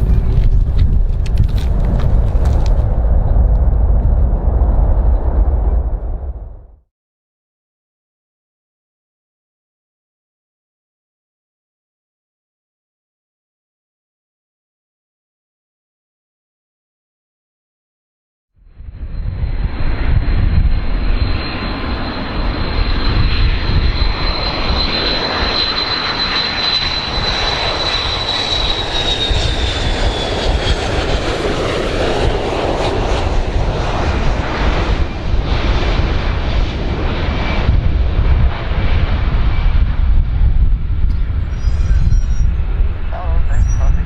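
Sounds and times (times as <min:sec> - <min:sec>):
airplane engines rumbling: 0:00.0 - 0:06.8, 0:18.6 - 0:44.0.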